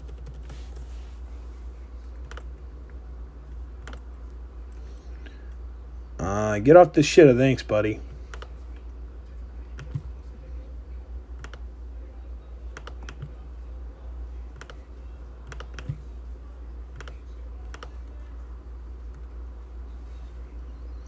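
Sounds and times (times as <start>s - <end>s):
steady low hum: 0.0s - 21.0s
keyboard key clicks: 15.5s - 16.0s.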